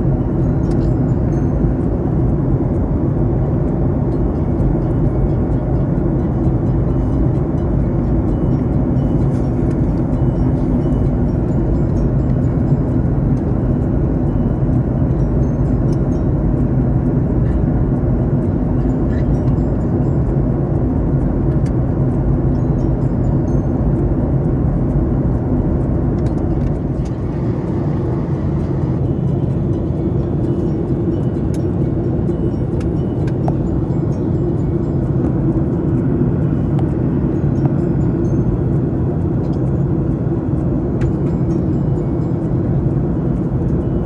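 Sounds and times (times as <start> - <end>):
airliner engine rumble: 0.0 - 44.0
rushing air: 24.6 - 44.0.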